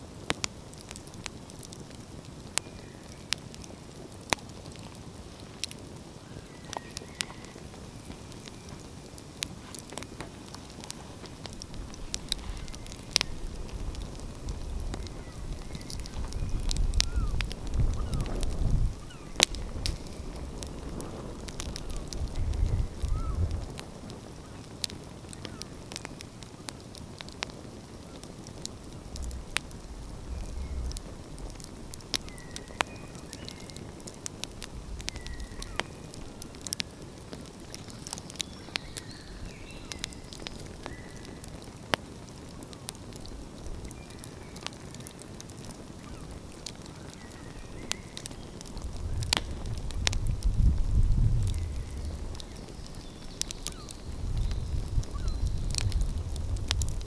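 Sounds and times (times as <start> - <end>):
wood fire crackling and popping: 0.0 - 57.0
bird calls: 6.3 - 8.9, 14.9 - 20.4, 21.8 - 23.5, 29.1 - 33.9, 35.0 - 36.2, 46.0 - 49.3, 51.6 - 55.8
low rumble: 28.9 - 32.4.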